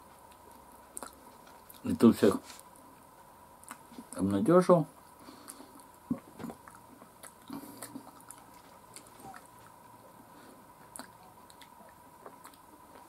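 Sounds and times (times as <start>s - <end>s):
person chewing with mouth smacks: 0.0s - 1.8s, 3.6s - 4.2s, 5.3s - 13.0s.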